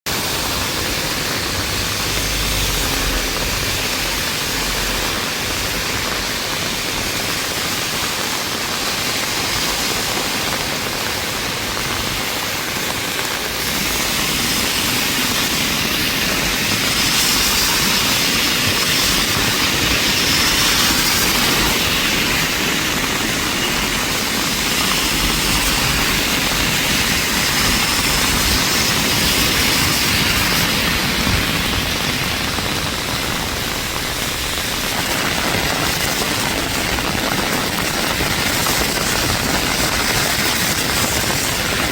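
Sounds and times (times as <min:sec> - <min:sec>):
steady rain falling: 0:00.1 - 0:41.9.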